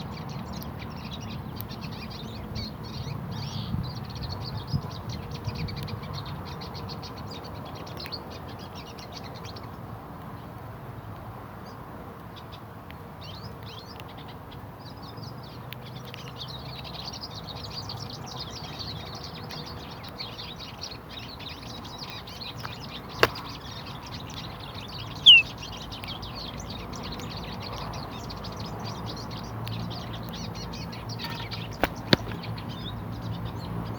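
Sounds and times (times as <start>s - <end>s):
small birds chirping: 0.0s - 33.9s
loud short falling bird call: 25.2s - 25.5s
sharp click: 31.1s - 32.5s.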